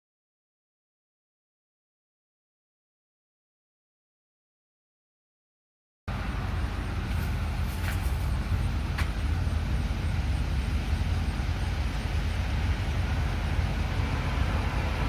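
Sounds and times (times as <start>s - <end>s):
road traffic rumble: 6.1s - 15.0s.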